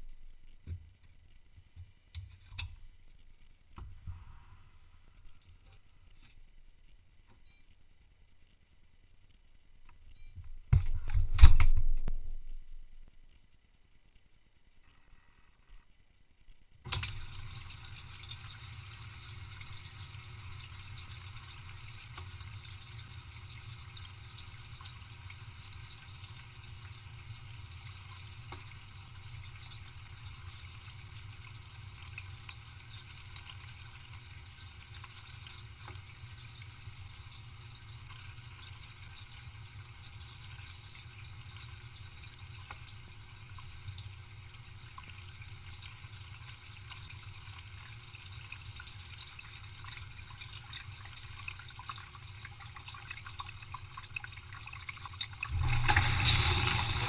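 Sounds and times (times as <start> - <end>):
dishwasher pump hum: 16.9 - 57.0
dishwasher water spraying: 55.5 - 57.0.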